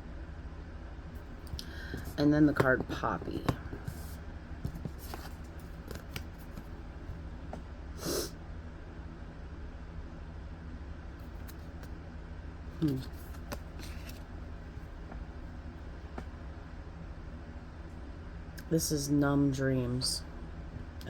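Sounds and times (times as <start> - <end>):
steady low hum: 0.0 - 21.0
cards rustling: 1.2 - 7.2, 11.2 - 11.9, 12.8 - 15.4
cards clicking: 4.6 - 6.7, 12.8 - 14.2.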